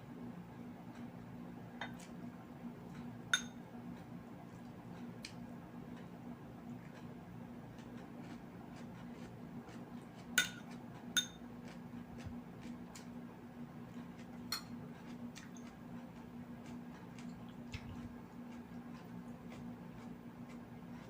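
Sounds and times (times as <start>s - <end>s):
steady low hum: 0.0s - 21.0s
small eating clicks: 1.8s - 21.0s
cutlery clinking on plate: 10.4s - 11.4s.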